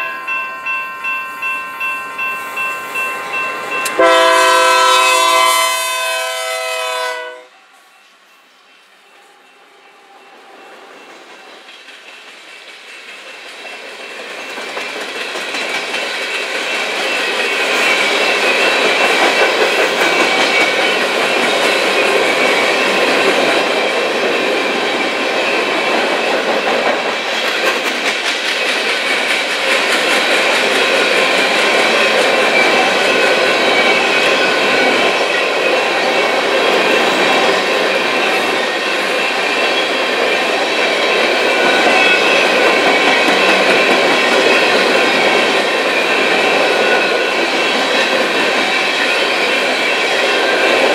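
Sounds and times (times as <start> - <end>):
wheels clicking over rail joints: 11.1 - 50.9.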